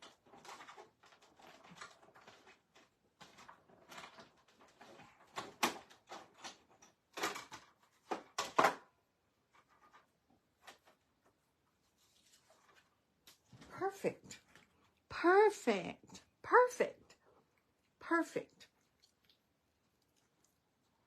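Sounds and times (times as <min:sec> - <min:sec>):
card stock rustling and scraping: 0:11.8 - 0:13.0.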